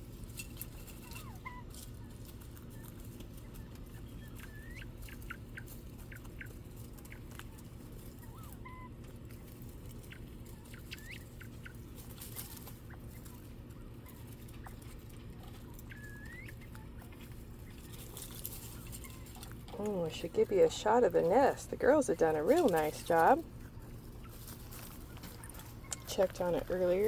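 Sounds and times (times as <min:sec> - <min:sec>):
quail peeping and chirping: 0:00.0 - 0:27.0
steady low hum: 0:00.0 - 0:27.0.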